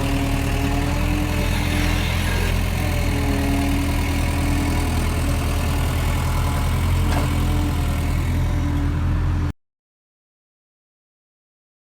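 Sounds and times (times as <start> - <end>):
tractor engine idling: 0.0 - 9.1.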